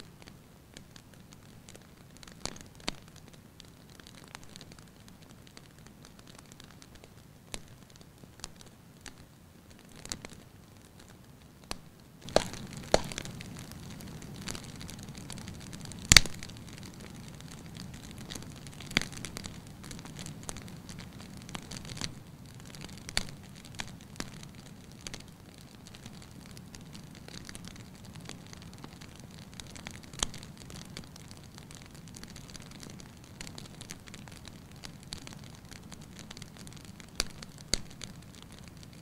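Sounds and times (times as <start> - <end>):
wood fire crackling: 0.0 - 39.0
sharp pops and cracks: 0.2 - 3.3, 11.7 - 24.4, 25.9 - 39.0.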